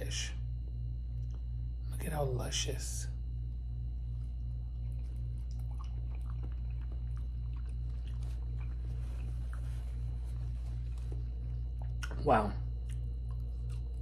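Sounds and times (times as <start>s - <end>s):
steady low hum: 0.0s - 14.0s
wet chewing: 4.0s - 14.0s.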